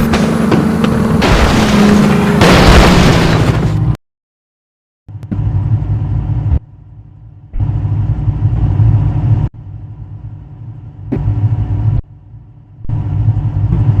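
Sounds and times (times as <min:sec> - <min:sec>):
engine running hard: 0:00.0 - 0:02.7, 0:12.8 - 0:14.0.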